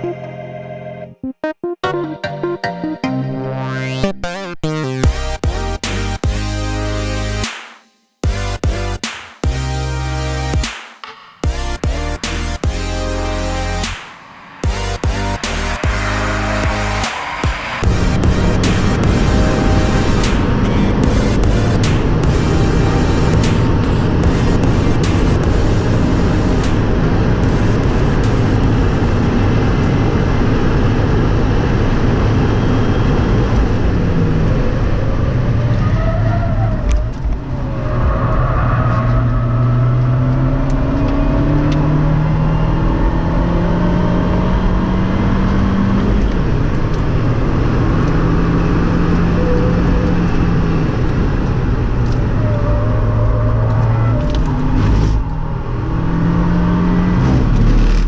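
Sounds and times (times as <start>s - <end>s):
car engine revving through gears: 14.6s - 58.0s.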